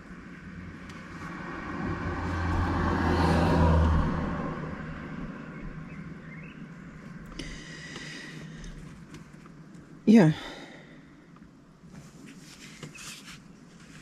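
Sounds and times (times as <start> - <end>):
vehicle driving past: 0.6 - 6.9.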